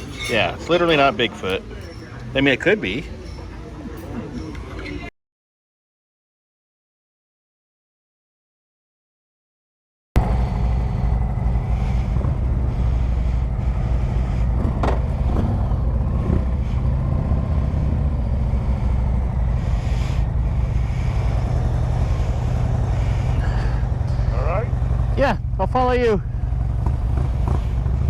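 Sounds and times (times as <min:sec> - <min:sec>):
motorcycle engine running: 0:10.2 - 0:28.0.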